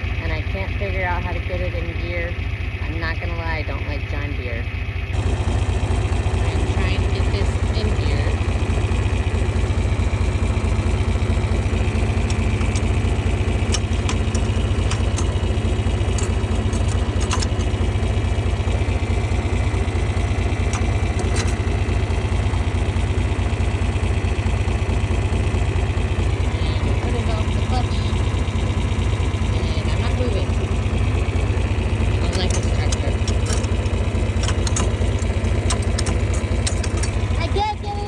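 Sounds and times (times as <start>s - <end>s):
tractor engine running: 0.0s - 38.0s
gear lever clicks and knocks: 11.6s - 17.9s, 20.6s - 21.7s, 32.3s - 37.2s.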